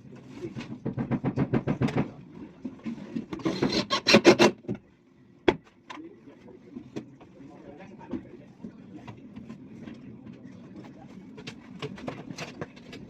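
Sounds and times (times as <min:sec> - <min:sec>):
hand tool rasping a board: 0:03.4 - 0:04.5.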